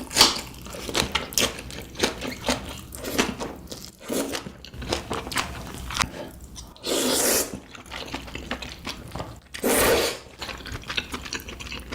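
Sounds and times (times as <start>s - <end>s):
loud noodle slurps: 6.8s - 7.6s, 9.6s - 10.3s
soft wet chewing: 7.5s - 9.6s, 10.2s - 11.9s.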